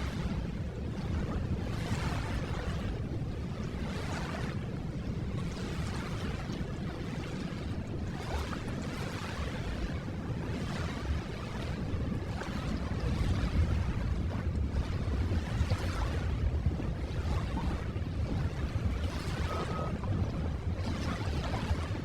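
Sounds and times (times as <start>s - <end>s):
ocean surf washing: 7.0s - 22.0s.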